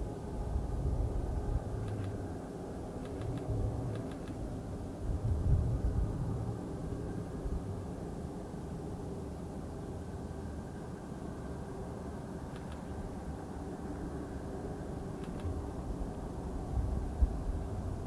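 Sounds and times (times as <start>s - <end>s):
faint engine drone: 0.0s - 18.0s
light clicks: 1.8s - 2.2s, 3.0s - 4.4s, 12.5s - 13.0s, 15.2s - 15.6s.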